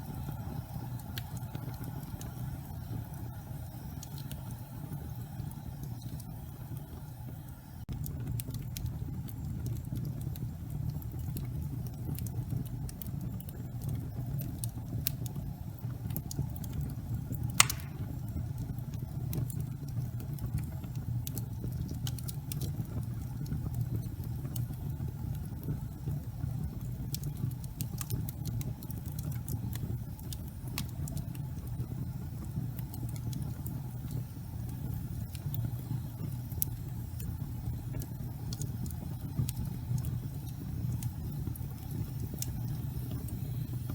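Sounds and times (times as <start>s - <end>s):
fire crackles and pops: 0.0s - 43.9s
fire rumbling in fireplace: 0.0s - 43.9s.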